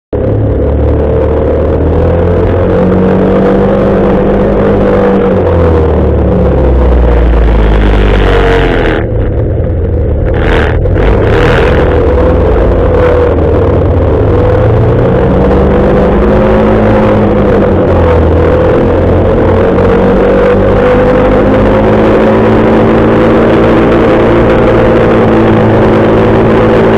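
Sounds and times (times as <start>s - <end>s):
motorcycle engine running: 0.1s - 26.9s.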